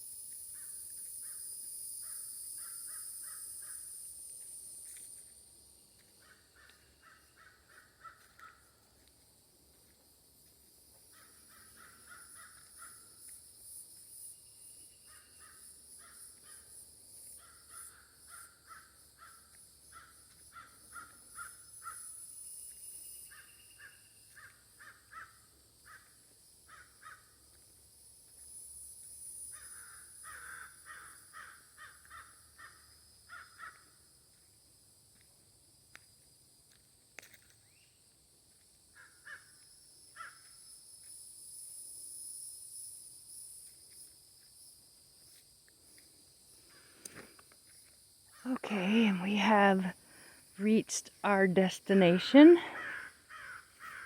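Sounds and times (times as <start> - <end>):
crow cawing: 6.2 - 8.7, 11.1 - 13.0, 17.4 - 22.1, 24.4 - 26.1, 26.7 - 27.3, 29.6 - 33.9, 39.0 - 39.5, 40.2 - 40.4, 52.6 - 54.0.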